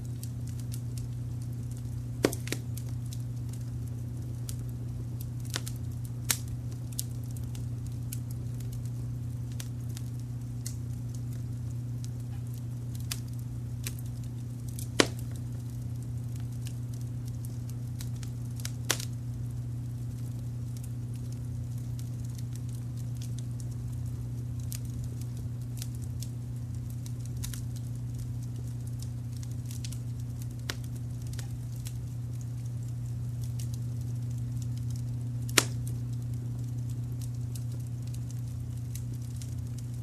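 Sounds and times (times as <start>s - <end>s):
fire crackling: 0.0s - 40.0s
low rumble of brown noise: 0.0s - 40.0s
sharp pops: 2.2s - 2.7s, 15.0s - 15.4s, 35.5s - 35.8s.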